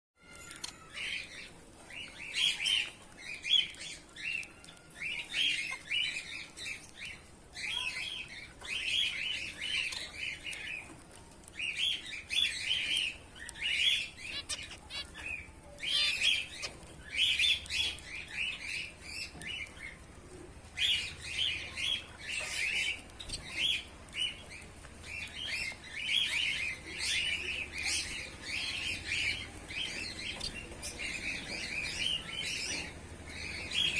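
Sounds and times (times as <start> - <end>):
finches chirping: 11.5 - 20.0, 20.8 - 33.9.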